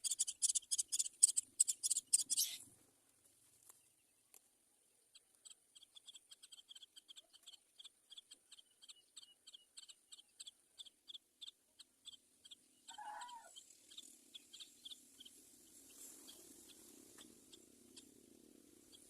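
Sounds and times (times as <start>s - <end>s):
faint bird chirps: 0.0s - 2.7s, 4.9s - 19.0s
lower bird call: 12.9s - 15.0s.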